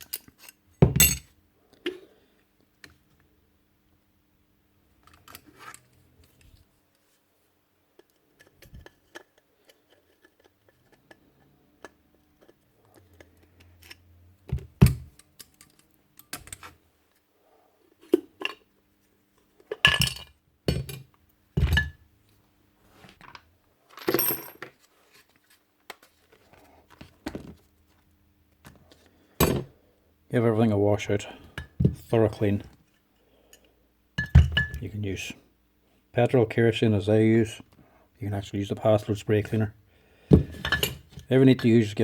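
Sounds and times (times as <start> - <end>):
metal parts clinking on workbench: 0.0 - 1.3, 19.7 - 21.0, 40.6 - 41.0.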